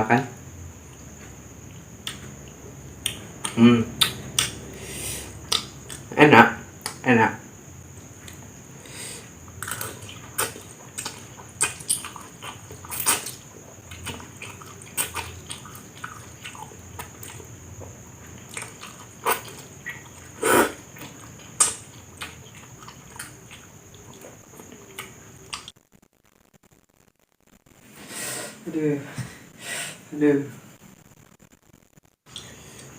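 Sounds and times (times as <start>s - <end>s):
wet chewing and lip smacks: 0.9s - 4.6s, 5.4s - 6.0s, 9.6s - 20.3s, 20.9s - 25.7s
faint high whine: 15.7s - 32.9s.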